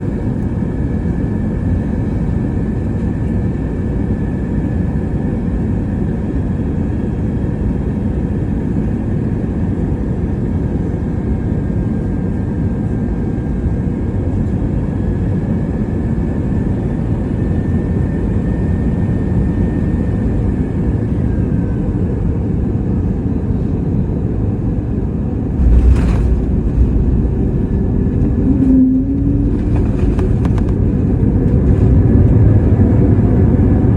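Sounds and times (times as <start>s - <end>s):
airplane cabin rumble: 20.5s - 33.9s
runway rumble: 24.8s - 32.7s
landing gear touchdown jolt: 25.6s - 30.8s.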